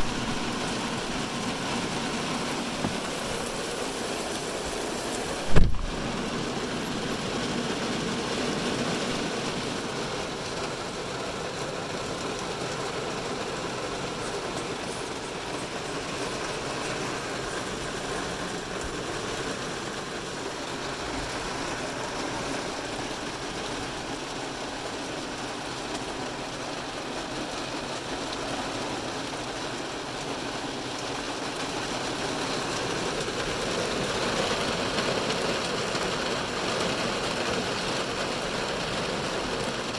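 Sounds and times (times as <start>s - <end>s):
heavy rain on car roof: 0.0s - 39.9s
sharp knock: 5.5s - 5.9s.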